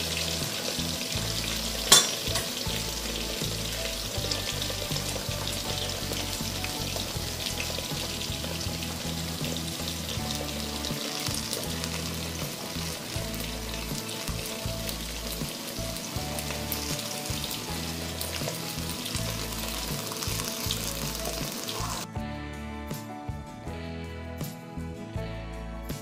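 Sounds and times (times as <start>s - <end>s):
oil crackling and popping: 0.0s - 22.1s
potatoes sizzling in hot oil: 0.0s - 22.1s
background music: 0.0s - 26.0s.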